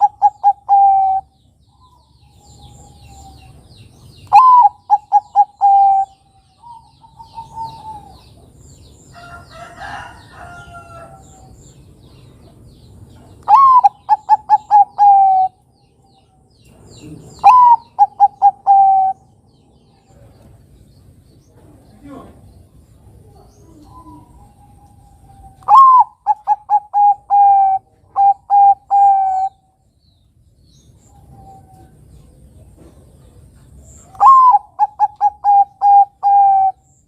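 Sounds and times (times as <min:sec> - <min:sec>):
dove cooing: 0:00.0 - 0:03.6, 0:04.2 - 0:08.6, 0:13.4 - 0:15.6, 0:17.1 - 0:19.3, 0:23.2 - 0:29.6, 0:34.0 - 0:37.0.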